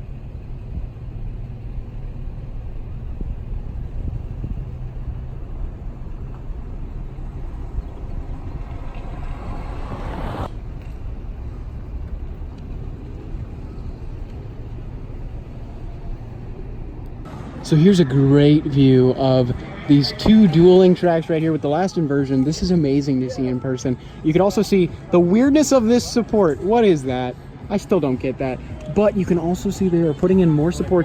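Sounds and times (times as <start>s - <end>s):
low rumble: 0.0s - 22.1s
rushing sound: 2.8s - 23.0s.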